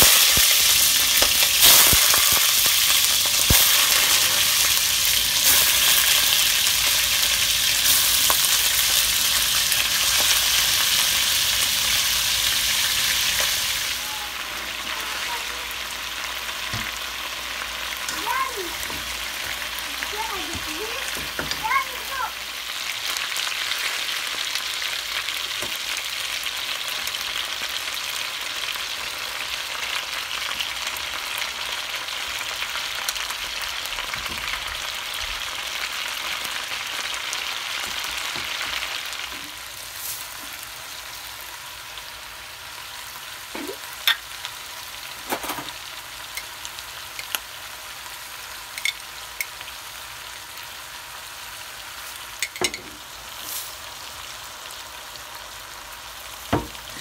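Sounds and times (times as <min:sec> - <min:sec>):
chicken frying hiss: 0:00.0 - 0:57.0
spoon clinking against pot: 0:48.8 - 0:49.5, 0:52.4 - 0:52.9.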